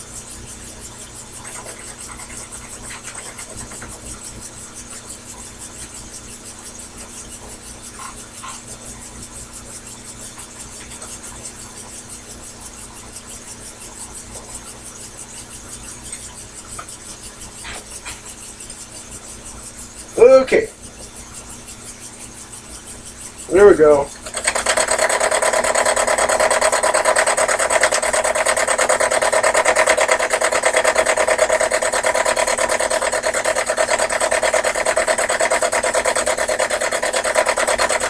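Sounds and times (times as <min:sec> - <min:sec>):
lathe motor humming: 0:00.0 - 0:38.0.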